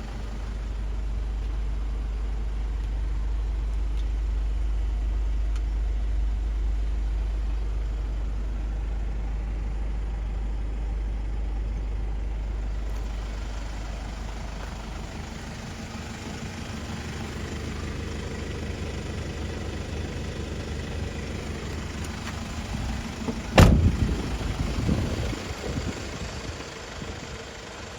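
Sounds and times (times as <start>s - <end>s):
diesel engine running: 0.0s - 27.9s
sharp bang: 23.6s - 24.0s.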